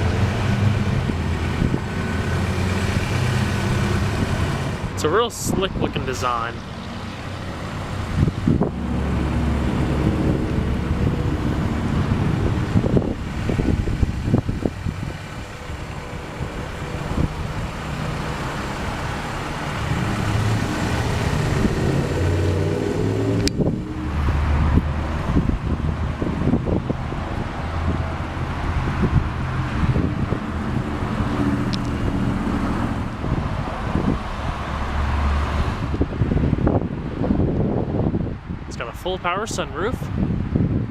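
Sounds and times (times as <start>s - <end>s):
car engine idling: 0.0s - 21.7s.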